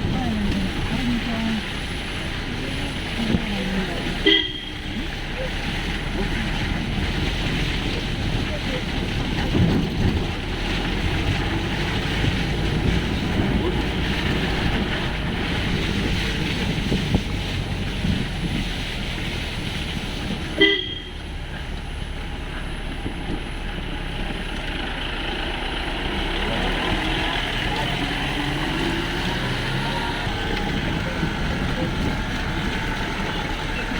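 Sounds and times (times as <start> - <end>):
jeep engine under load: 0.0 - 33.9
short horn toot: 4.2 - 4.8, 20.6 - 21.2
vehicle knocks over ruts: 4.8 - 20.6.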